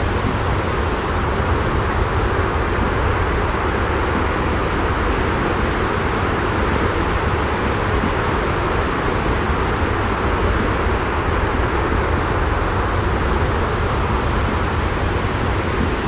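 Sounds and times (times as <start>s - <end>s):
deep white noise rumble: 0.0s - 16.0s.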